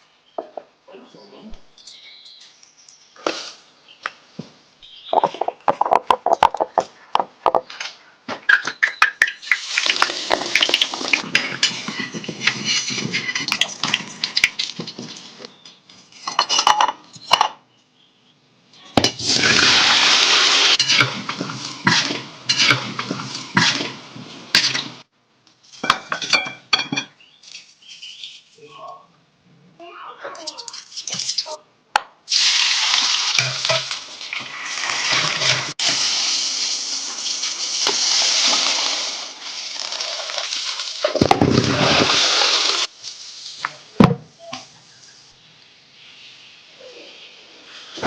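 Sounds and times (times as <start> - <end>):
tap water running: 9.1 - 12.5, 19.0 - 24.8, 32.3 - 42.9
dishes clinking in a sink: 25.8 - 27.2.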